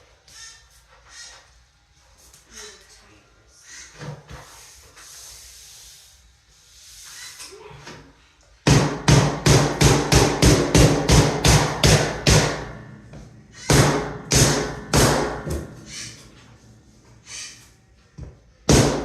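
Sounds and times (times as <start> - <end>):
hammer striking vinyl flooring: 8.7 - 12.8, 13.7 - 15.7, 18.7 - 19.0.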